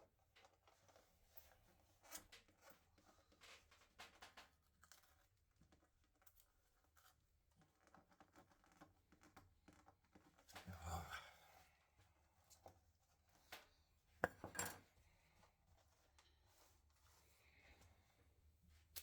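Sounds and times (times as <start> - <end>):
faint scratching and clicks: 0.3 - 11.0.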